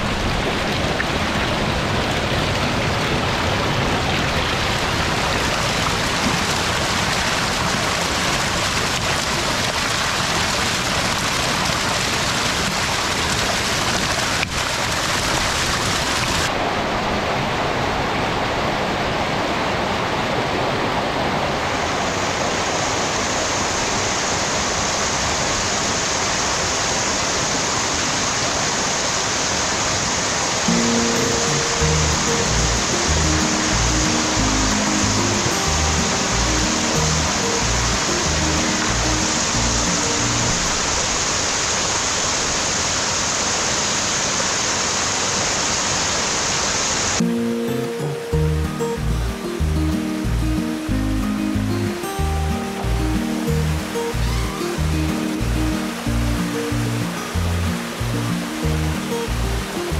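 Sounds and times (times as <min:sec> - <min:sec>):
water gushing into tanks: 0:00.0 - 0:16.6, 0:29.5 - 0:47.3.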